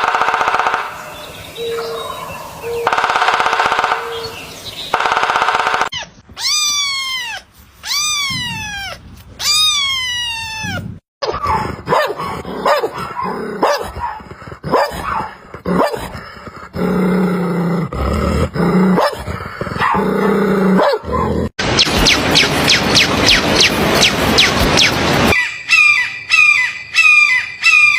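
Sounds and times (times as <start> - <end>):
dog barking: 11.2 - 16.1, 19.0 - 20.1, 20.8 - 21.4
dog growling: 11.5 - 21.5.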